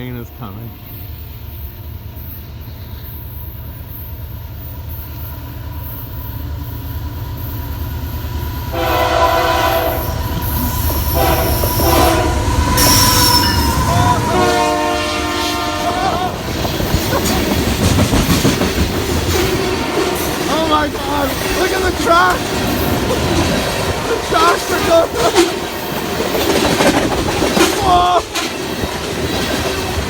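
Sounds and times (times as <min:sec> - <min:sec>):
freight train rumbling: 0:00.0 - 0:30.0
locomotive horn blasts: 0:08.7 - 0:10.4, 0:11.0 - 0:16.4, 0:19.4 - 0:20.4.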